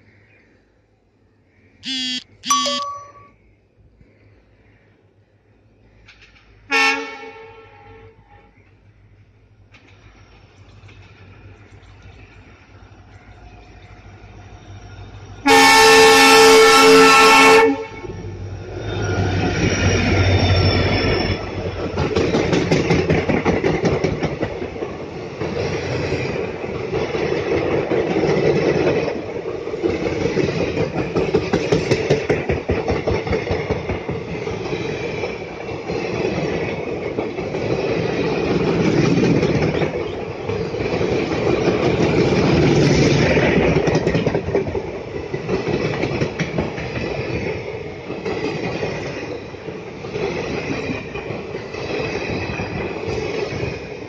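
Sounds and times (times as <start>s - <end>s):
locomotive air horn blast: 6.7s - 8.2s, 15.4s - 18.1s
coaches clattering over rail joints: 19.1s - 53.9s.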